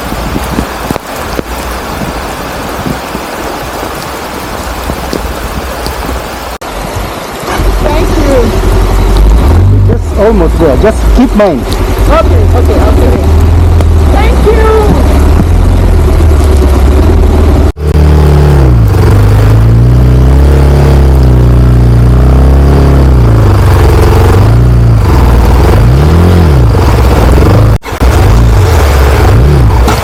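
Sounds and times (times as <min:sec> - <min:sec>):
motorcycle engine revving: 0:07.4 - 0:30.0.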